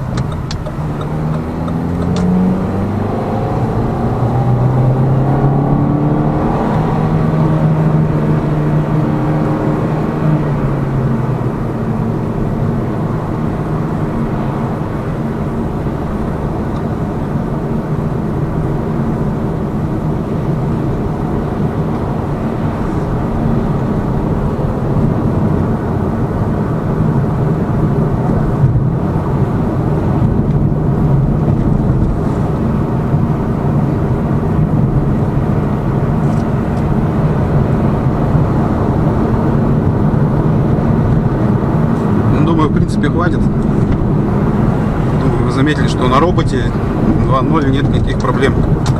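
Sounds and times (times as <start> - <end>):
car engine inside cabin: 0.0 - 48.9
road and tyre noise: 0.0 - 48.9.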